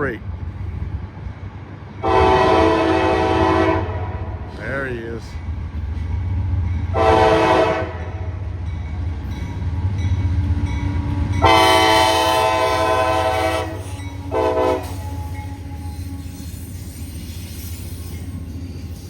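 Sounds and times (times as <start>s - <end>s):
train rumbling: 0.0s - 19.0s
locomotive air horn blasts: 2.0s - 4.1s, 7.0s - 8.1s, 11.4s - 16.0s.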